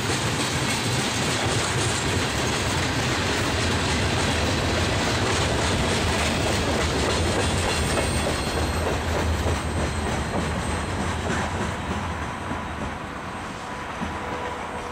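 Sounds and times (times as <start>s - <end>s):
freight train wheels on rails: 0.0s - 14.9s.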